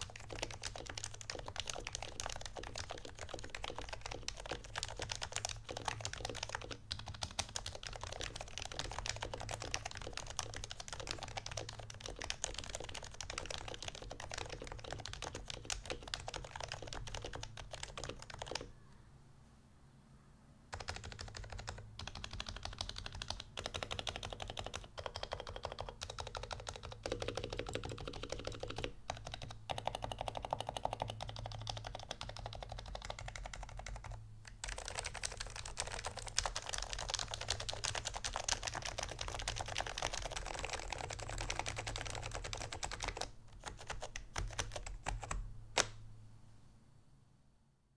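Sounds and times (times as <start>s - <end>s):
fast soft keyboard typing: 0.0s - 18.8s, 20.7s - 46.0s.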